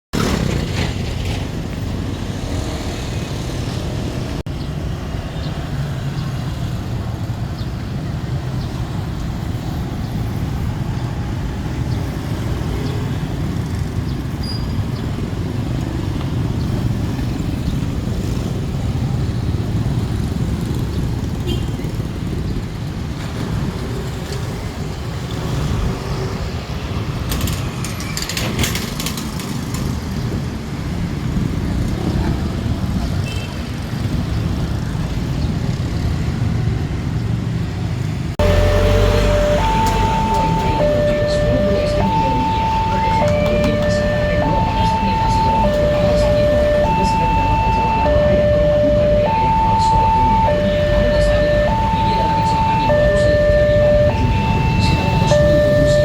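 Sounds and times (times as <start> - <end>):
road traffic: 0.1 - 56.0
motorbikes going by: 29.0 - 56.0.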